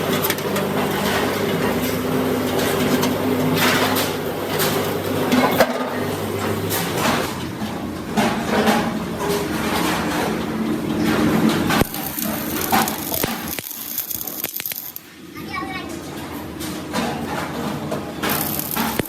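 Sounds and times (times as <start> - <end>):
machine hum: 9.6 - 15.3, 17.8 - 19.0.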